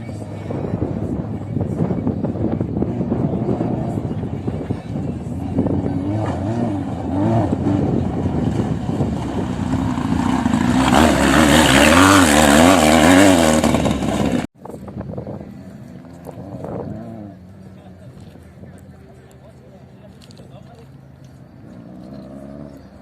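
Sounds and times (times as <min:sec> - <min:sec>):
dirt bike engine revving: 0:05.4 - 0:14.5, 0:21.6 - 0:23.0.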